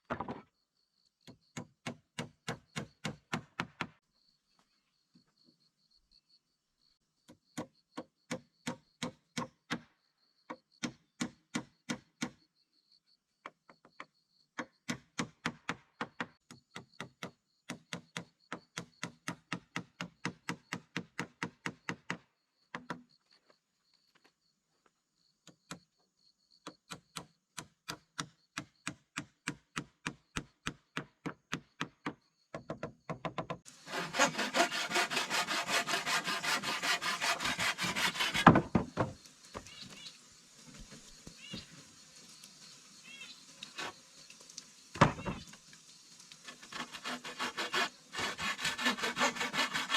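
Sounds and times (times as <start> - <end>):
hand tool striking wood: 1.5 - 4.0, 26.9 - 39.2, 46.5 - 49.9.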